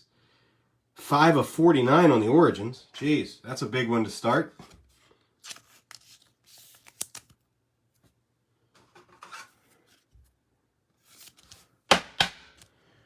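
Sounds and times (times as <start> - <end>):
cards sliding against each other: 4.6 - 7.4, 11.0 - 11.7.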